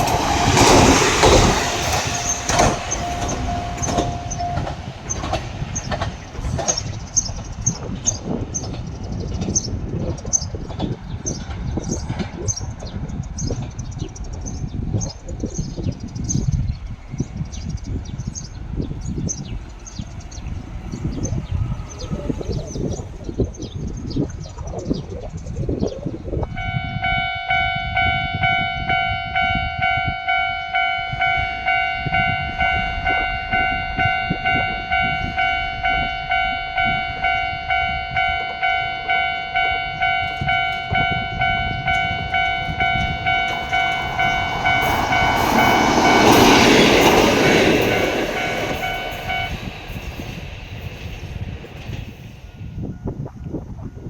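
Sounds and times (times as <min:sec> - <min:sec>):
level crossing alarm ringing: 0:00.0 - 0:06.0, 0:26.5 - 0:52.0
diesel train passing: 0:00.0 - 0:53.3.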